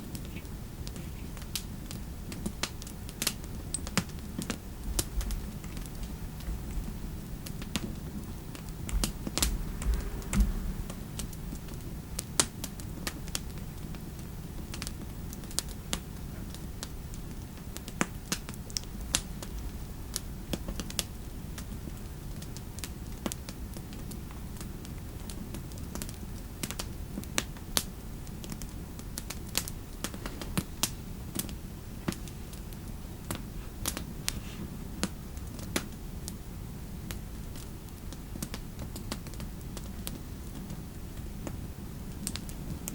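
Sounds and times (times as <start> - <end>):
fireplace ambience: 0.0 - 42.9.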